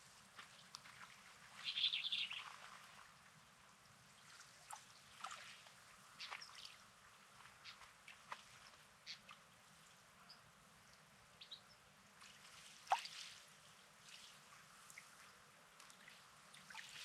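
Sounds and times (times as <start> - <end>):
small waves trickling over stones: 4.1 - 9.5, 12.2 - 17.0.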